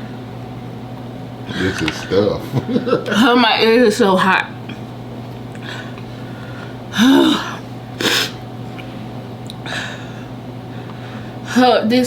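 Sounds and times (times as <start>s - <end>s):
woman groaning: 6.9s - 7.6s
woman's sneeze-like exhalation: 7.0s - 8.4s.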